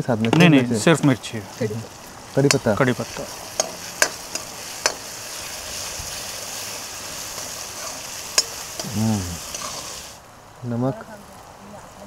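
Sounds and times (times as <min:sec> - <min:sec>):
vegetables sizzling in oil: 0:00.2 - 0:10.2
metal spoon scraping pan: 0:02.5 - 0:05.1, 0:07.4 - 0:10.0.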